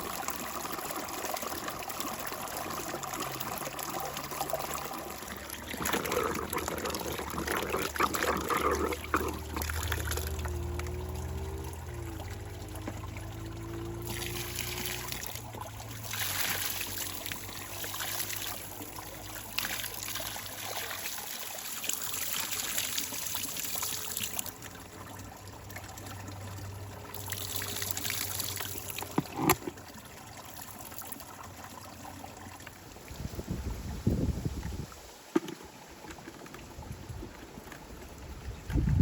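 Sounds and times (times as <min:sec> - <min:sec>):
water trickling and pouring: 0:00.0 - 0:39.0.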